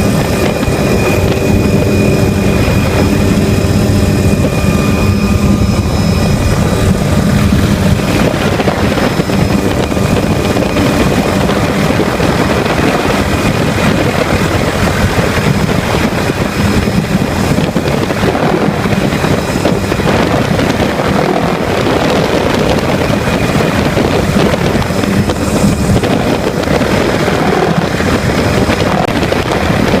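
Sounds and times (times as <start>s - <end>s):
helicopter engine and rotor: 0.0s - 30.0s.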